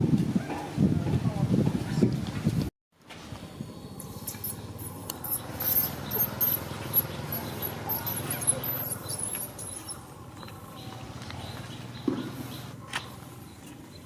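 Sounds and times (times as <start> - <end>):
monkeys squeaking: 4.3 - 12.7.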